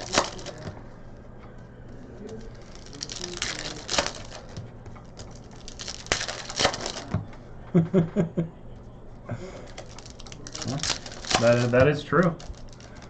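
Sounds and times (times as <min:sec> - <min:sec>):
foil wrappers crinkling: 0:00.0 - 0:01.2, 0:01.9 - 0:07.3, 0:09.5 - 0:13.0.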